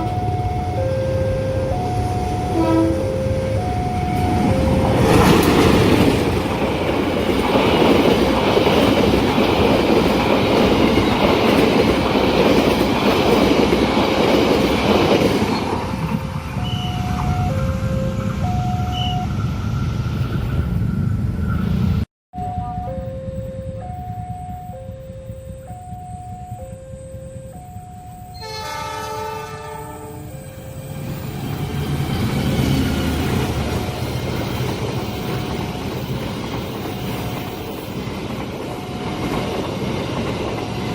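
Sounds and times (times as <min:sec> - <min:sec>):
train horn: 0:00.0 - 0:05.2, 0:28.3 - 0:30.4
two-note alternating tone: 0:00.0 - 0:05.4, 0:22.4 - 0:28.8
level crossing alarm: 0:00.0 - 0:09.4, 0:15.8 - 0:20.0, 0:22.3 - 0:32.0
train wheels clattering over rails: 0:04.1 - 0:16.3, 0:31.0 - 0:40.9.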